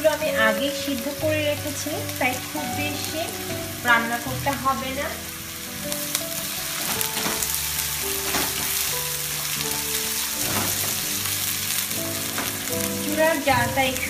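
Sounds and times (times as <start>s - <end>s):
vegetables sizzling in hot oil: 0.0s - 14.0s
wooden spatula scraping pan: 6.3s - 13.4s.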